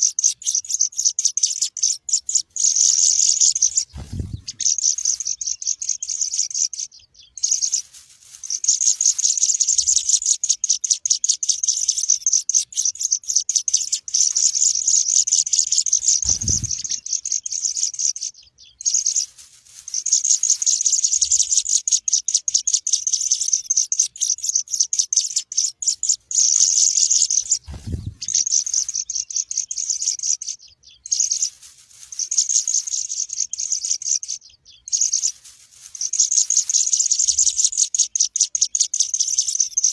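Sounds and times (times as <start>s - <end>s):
chicks chirping: 0.0s - 39.9s
low thumps: 3.8s - 4.7s, 16.0s - 17.0s, 27.5s - 28.4s.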